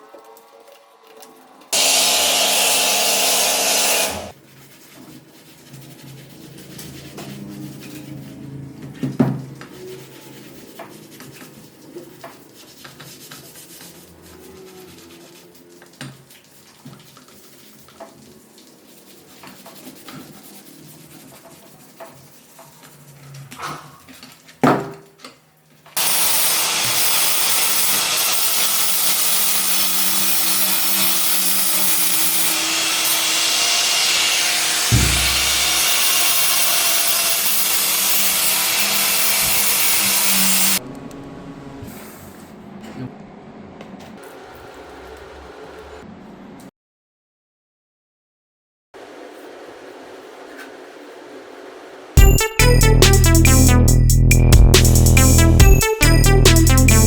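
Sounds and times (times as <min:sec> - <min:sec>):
power tool hissing: 0:01.8 - 0:04.4, 0:26.0 - 0:40.8
low thump: 0:34.9 - 0:35.8.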